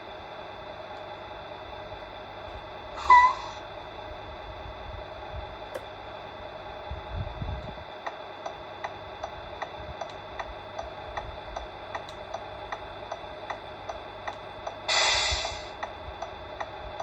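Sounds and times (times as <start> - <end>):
faint steady hum: 0.0 - 17.0
electronic ticking: 8.1 - 14.9
short loud hiss: 14.9 - 15.7.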